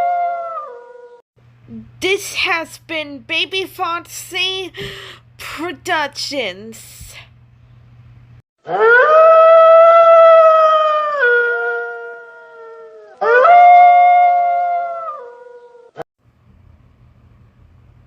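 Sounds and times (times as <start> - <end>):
wolf howling: 0.0 - 1.0, 8.7 - 16.0.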